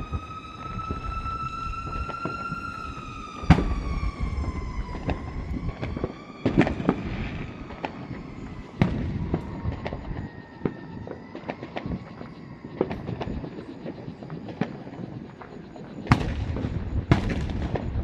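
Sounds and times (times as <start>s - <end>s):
fireworks bangs: 0.0s - 18.0s
long held tone: 0.0s - 18.0s.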